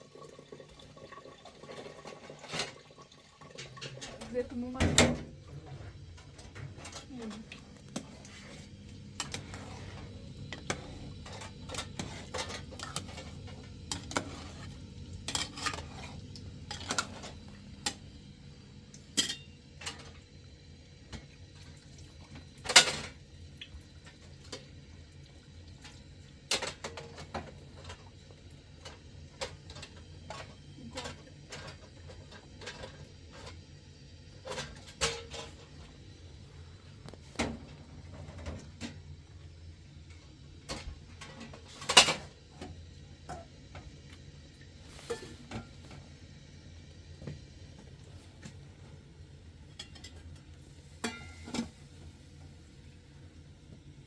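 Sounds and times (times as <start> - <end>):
dishes and cutlery clinking: 19.2 - 19.5, 51.0 - 51.7.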